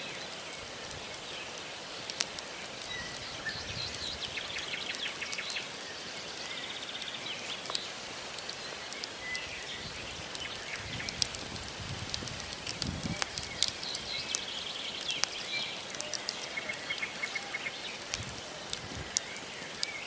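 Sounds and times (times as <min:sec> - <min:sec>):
campfire crackling and popping: 0:00.0 - 0:20.0
birds chirping and trilling: 0:02.6 - 0:11.4, 0:13.0 - 0:20.0.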